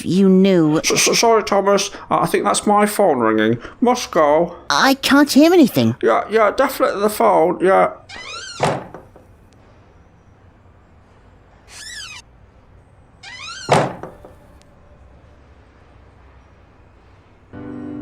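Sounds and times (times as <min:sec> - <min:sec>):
cartoon falling squeaks: 0:08.1 - 0:08.9, 0:11.7 - 0:12.3, 0:13.2 - 0:14.4.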